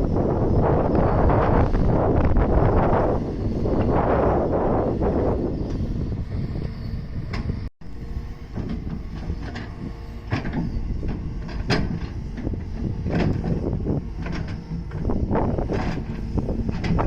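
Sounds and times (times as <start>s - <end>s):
hydraulic excavator running: 0.0s - 17.0s
metallic clanks and squeaks: 8.4s - 15.1s.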